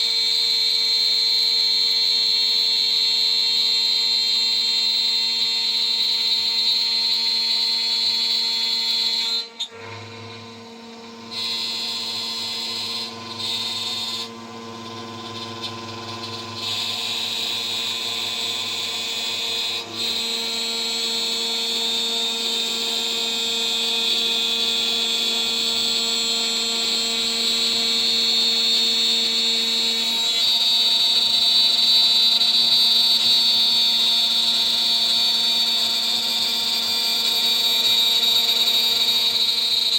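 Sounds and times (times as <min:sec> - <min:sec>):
router spindle hum: 0:00.1 - 0:39.9.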